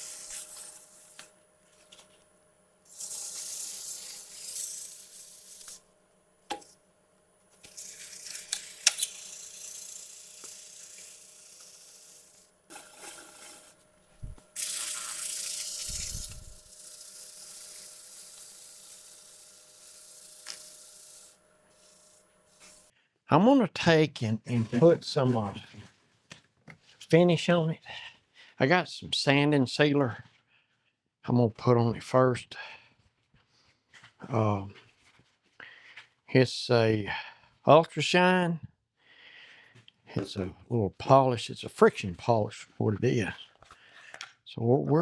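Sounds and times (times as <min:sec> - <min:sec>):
sandpaper hissing on spinning wood: 0:00.0 - 0:01.3, 0:02.9 - 0:05.8, 0:07.6 - 0:22.9.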